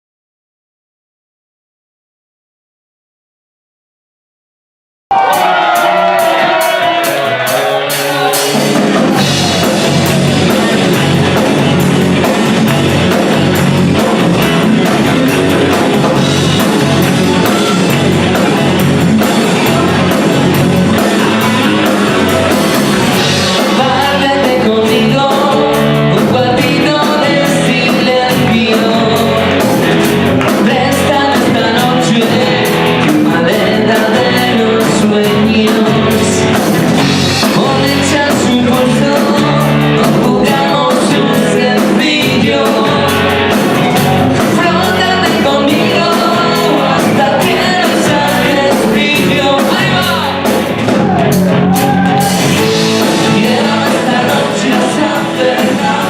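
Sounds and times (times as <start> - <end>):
person singing: 5.1 - 56.0
pop-rock band playing: 5.1 - 56.0.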